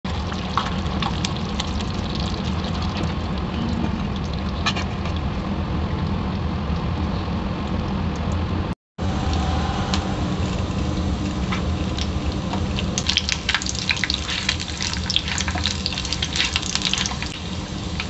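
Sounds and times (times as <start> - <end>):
crackles and pops of frying: 0.1 - 5.4, 10.5 - 18.0
low hum: 2.8 - 18.0
food sizzling in a hot pan: 9.2 - 18.0.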